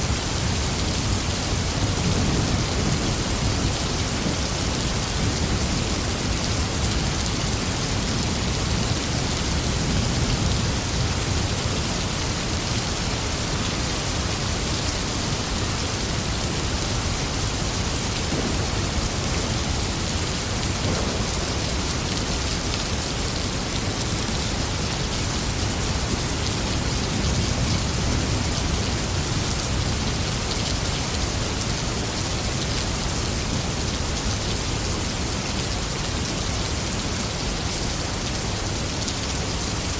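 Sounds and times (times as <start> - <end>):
steady rain: 0.0 - 39.9
thunder rumbling: 18.1 - 22.6.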